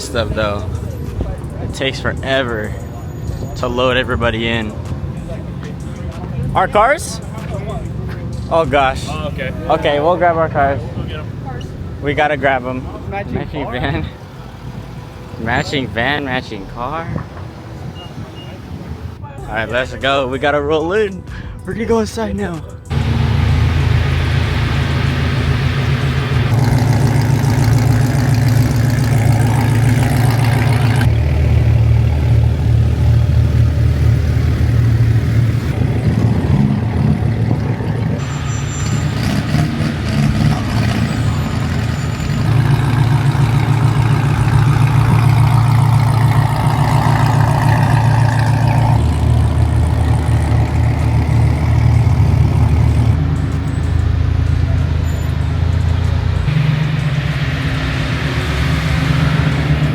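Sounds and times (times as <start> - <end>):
car engines running: 0.0 - 59.9.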